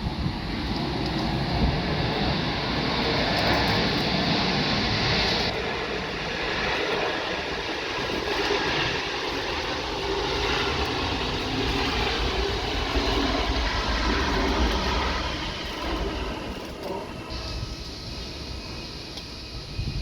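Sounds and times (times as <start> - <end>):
jet airliner landing rush: 0.0 - 20.0.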